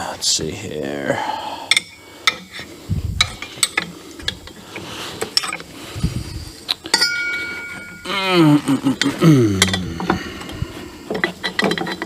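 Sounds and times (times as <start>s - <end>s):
metallic clicks and clinks: 3.2s - 4.6s, 5.2s - 5.7s, 6.7s - 8.1s, 9.0s - 10.2s, 11.1s - 12.0s
steady ringing tone: 6.8s - 8.3s.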